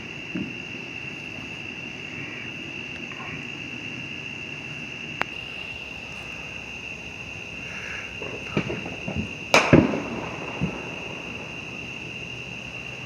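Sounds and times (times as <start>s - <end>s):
night insects chirring: 0.0s - 13.0s
fireworks bangs: 5.3s - 13.0s.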